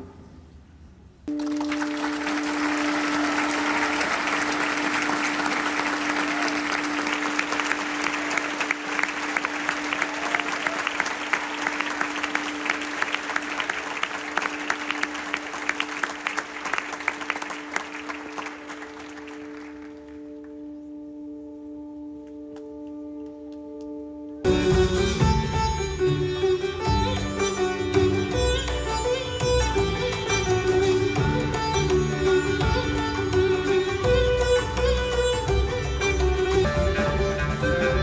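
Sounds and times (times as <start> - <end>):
held musical chord: 1.3 - 19.9
crowd applauding: 1.3 - 20.5.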